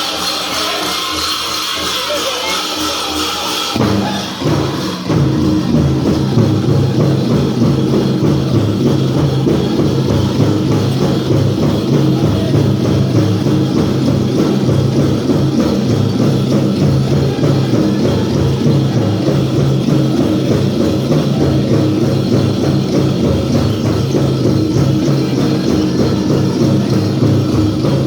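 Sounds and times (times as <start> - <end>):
large drum beating: 3.7 - 28.0
men singing in unison: 16.8 - 22.5, 24.6 - 28.0.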